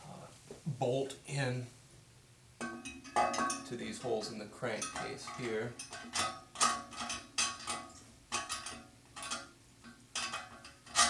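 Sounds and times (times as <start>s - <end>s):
metal engine parts clinking: 2.6s - 11.0s.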